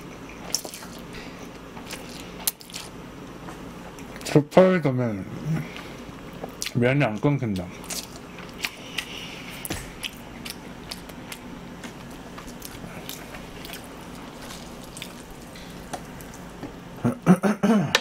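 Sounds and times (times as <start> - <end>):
steady low hum: 0.0 - 18.0
wet chewing and lip-smacking: 0.1 - 3.3, 7.6 - 16.6.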